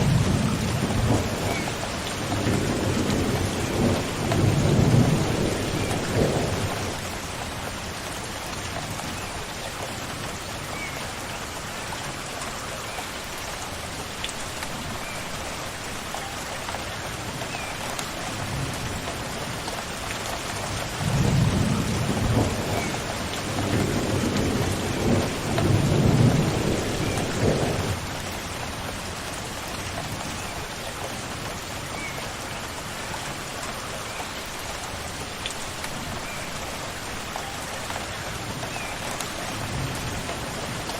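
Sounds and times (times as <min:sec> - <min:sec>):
thunder rumbling: 0:00.0 - 0:07.2, 0:20.9 - 0:28.2
rain falling: 0:00.0 - 0:40.9.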